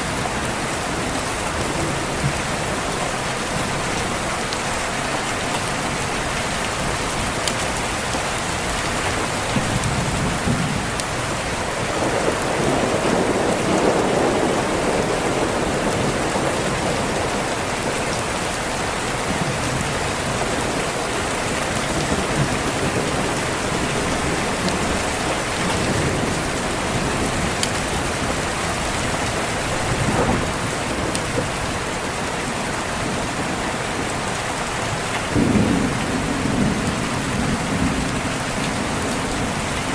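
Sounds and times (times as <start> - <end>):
rain on a window: 0.0 - 39.9
thunder rumble: 8.8 - 18.3, 19.3 - 33.6.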